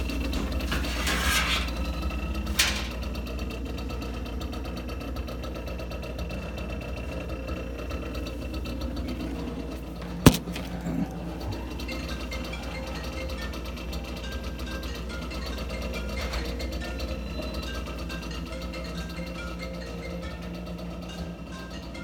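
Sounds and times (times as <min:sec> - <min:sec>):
refrigerator compressor humming: 0:01.8 - 0:22.0
sharp knock: 0:10.3 - 0:10.7.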